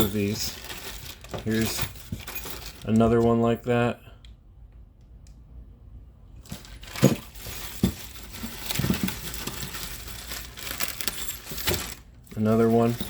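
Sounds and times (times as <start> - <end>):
plastic packaging crinkling: 0.0 - 3.0, 6.5 - 13.0
parts knocking and clinking: 0.0 - 3.4, 6.5 - 13.0.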